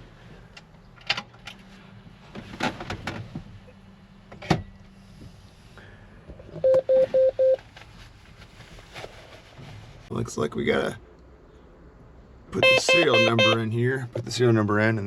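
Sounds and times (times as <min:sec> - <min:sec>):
short electronic beeps: 0:06.6 - 0:07.6.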